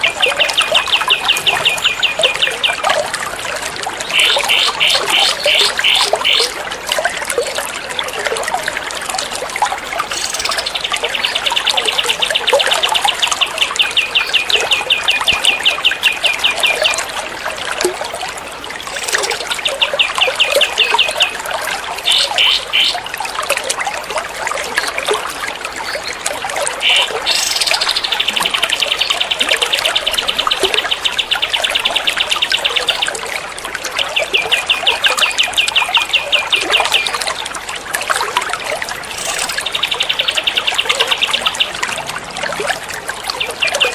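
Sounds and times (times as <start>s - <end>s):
running water trickling: 0.0s - 43.9s
songbird trills: 39.1s - 41.8s.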